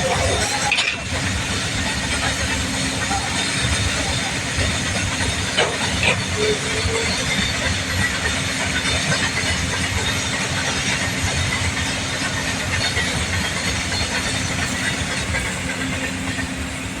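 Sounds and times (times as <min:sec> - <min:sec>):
train rumbling past: 0:00.0 - 0:17.0.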